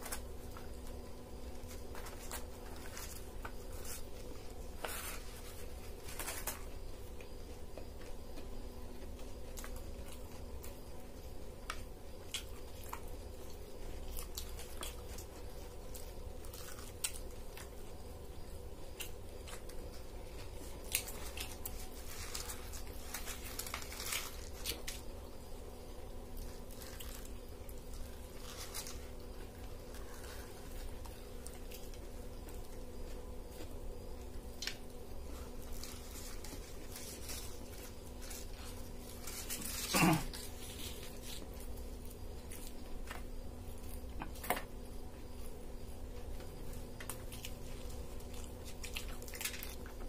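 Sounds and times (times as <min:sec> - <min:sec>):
paper wrappers crinkling: 0:00.0 - 0:07.4, 0:18.9 - 0:44.6, 0:46.2 - 0:50.0
biting and chewing food: 0:00.0 - 0:50.0
steady low hum: 0:00.0 - 0:50.0.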